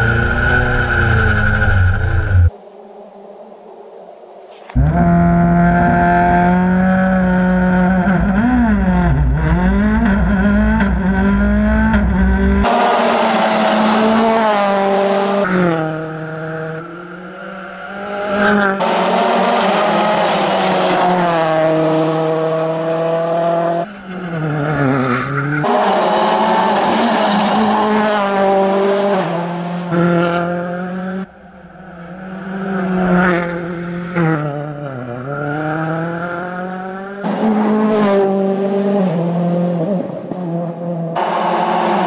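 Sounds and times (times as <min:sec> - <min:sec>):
rally car engine revving: 0:04.8 - 0:42.0.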